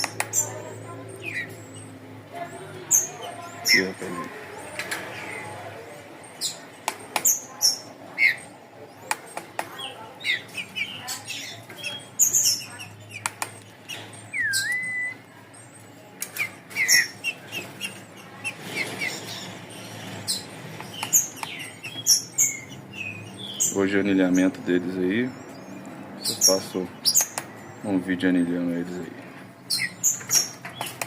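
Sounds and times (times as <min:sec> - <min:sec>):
sharp clicks: 0:00.0 - 0:00.4, 0:13.1 - 0:13.7, 0:20.8 - 0:21.7
songbirds chirping: 0:00.0 - 0:31.0.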